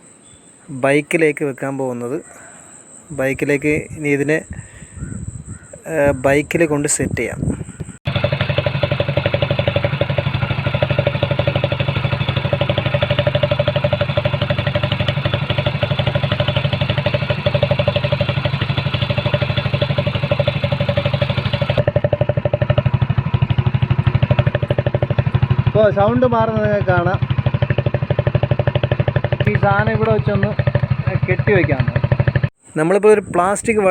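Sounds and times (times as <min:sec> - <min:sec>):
motorcycle engine idling: 0:07.5 - 0:32.5.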